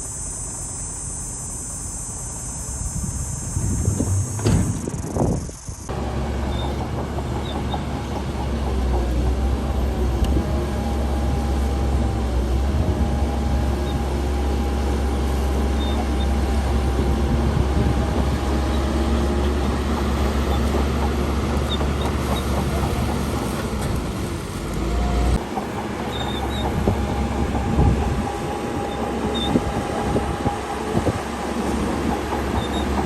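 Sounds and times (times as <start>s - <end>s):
faint steady whine: 0.0s - 9.3s
heavy diesel engine droning: 0.0s - 33.0s.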